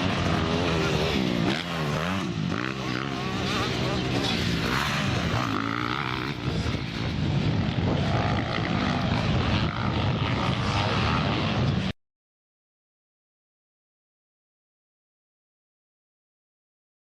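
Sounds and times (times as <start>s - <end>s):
motocross bike engines racing: 0.0s - 11.9s.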